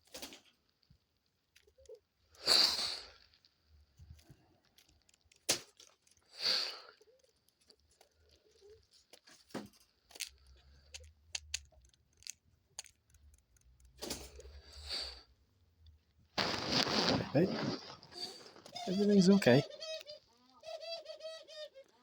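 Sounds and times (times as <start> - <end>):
dove pecking seeds clicks: 4.2 - 14.6, 16.4 - 22.0
brief rustles: 16.4 - 19.6.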